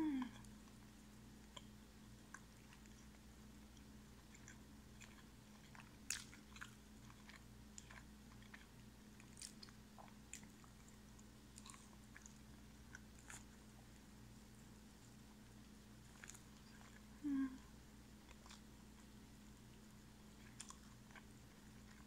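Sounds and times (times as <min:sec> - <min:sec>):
steady low hum: 0:00.0 - 0:22.0
person chewing crunchy food: 0:01.4 - 0:13.8, 0:16.0 - 0:17.1, 0:18.2 - 0:19.2, 0:20.2 - 0:22.0.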